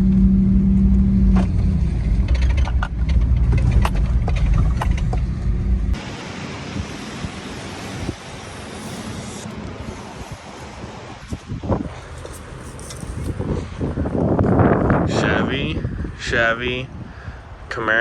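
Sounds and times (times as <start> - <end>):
truck engine and road rumble: 0.0 - 18.0
sharp knocks and rattles: 1.3 - 6.0
wind hiss on microphone: 6.0 - 18.0.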